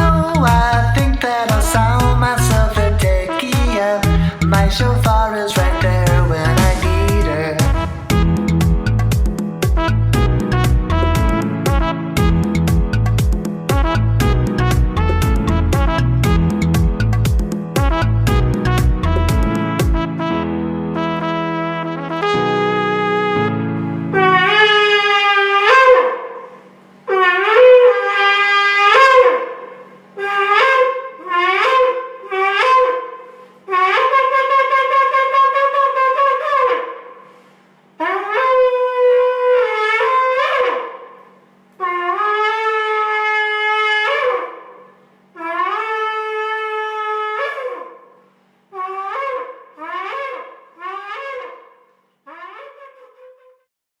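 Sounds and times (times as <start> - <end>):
ram's horn blasts: 0.0 - 12.8.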